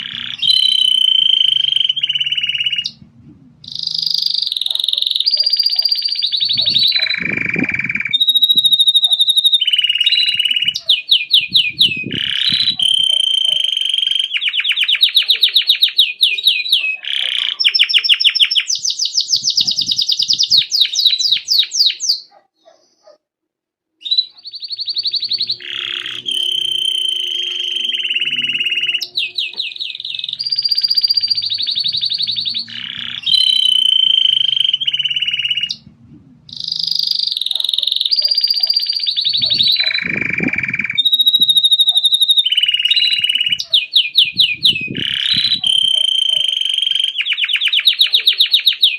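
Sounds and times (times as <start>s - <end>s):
canary singing trills: 0.0s - 23.2s, 24.0s - 48.9s.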